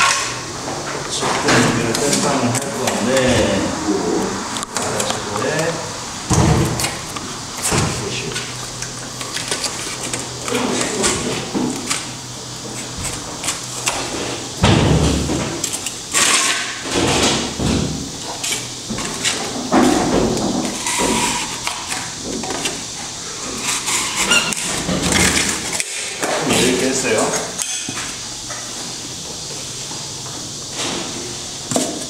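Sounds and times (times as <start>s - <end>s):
knocks and scraping of material: 16.2s - 22.8s.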